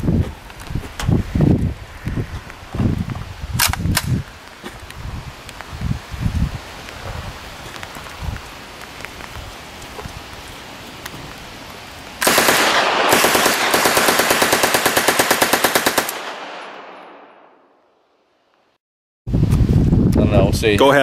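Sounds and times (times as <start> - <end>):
machine gun fire: 12.2 - 17.4.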